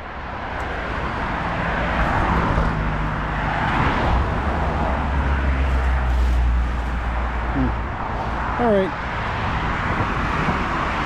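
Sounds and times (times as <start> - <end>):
tyre noise of passing traffic: 0.0 - 11.0.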